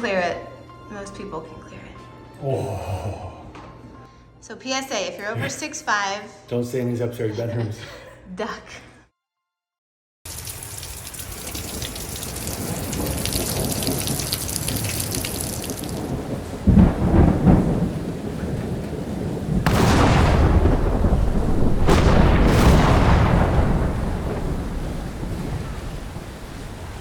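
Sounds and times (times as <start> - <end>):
heavy rain: 10.3 - 27.0
strong wind: 12.6 - 27.0
heavy low rumbles: 19.6 - 27.0.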